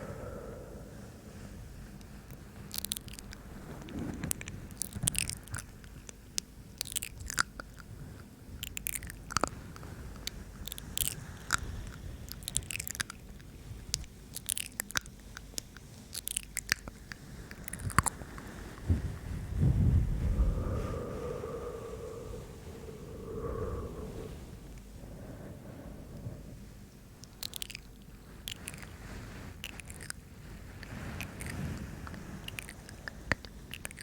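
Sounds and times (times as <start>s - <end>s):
tongue clicks: 27.2s - 27.9s, 32.4s - 34.0s.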